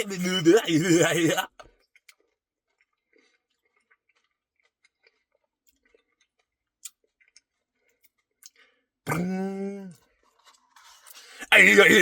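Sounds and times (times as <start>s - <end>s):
quiet chewing: 1.4s - 8.9s, 9.9s - 11.4s.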